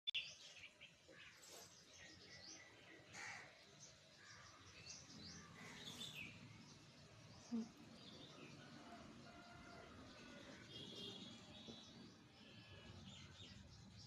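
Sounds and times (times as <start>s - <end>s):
faint birds chirping: 0.1s - 14.0s.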